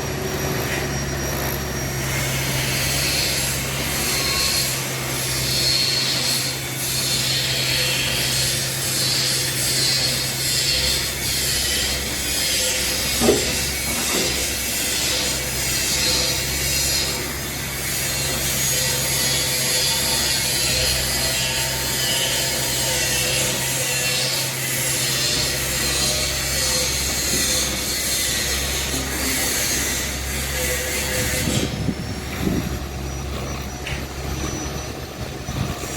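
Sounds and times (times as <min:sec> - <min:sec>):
excavator diesel engine running: 0:00.0 - 0:35.9
bucket scraping soil: 0:23.1 - 0:35.9.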